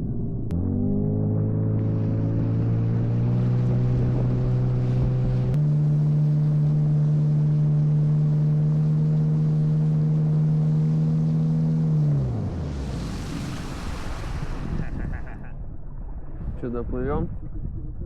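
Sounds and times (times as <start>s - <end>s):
outboard motor running: 0.0s - 18.0s
water noise: 0.0s - 18.0s.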